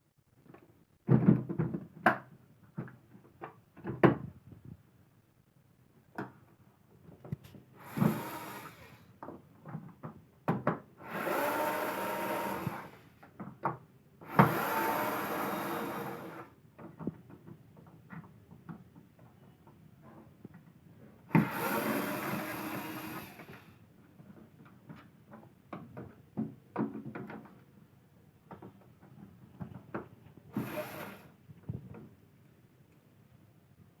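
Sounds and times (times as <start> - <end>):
small motor whirring: 7.8 - 9.1, 11.0 - 13.1, 14.3 - 16.5, 21.3 - 23.7, 30.5 - 31.4.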